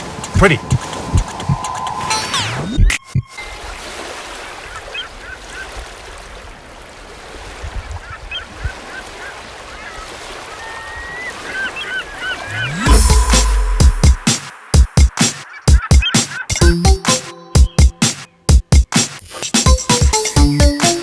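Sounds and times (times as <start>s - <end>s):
outdoor background noise: 0.0s - 13.8s
birds chirping: 8.0s - 18.9s.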